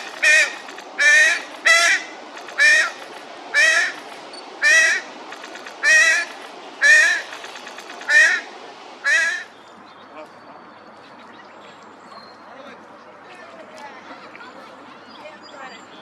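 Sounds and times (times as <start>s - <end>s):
bird harsh calls: 0.0s - 10.2s.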